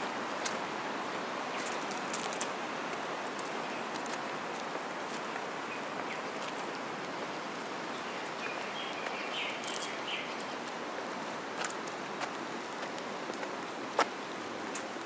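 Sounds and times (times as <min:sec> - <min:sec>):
outdoor background noise: 0:00.0 - 0:15.0
bird chirps: 0:08.0 - 0:10.5.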